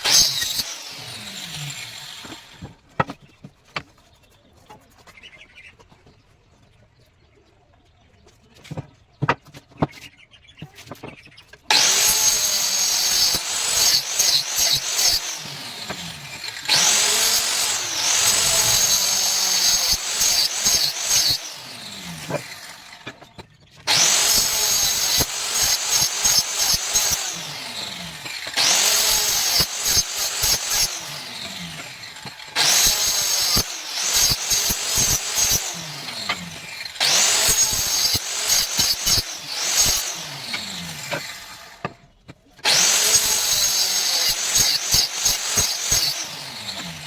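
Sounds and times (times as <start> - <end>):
power tool working wood: 0.0 - 2.8, 11.7 - 42.0, 42.6 - 47.0.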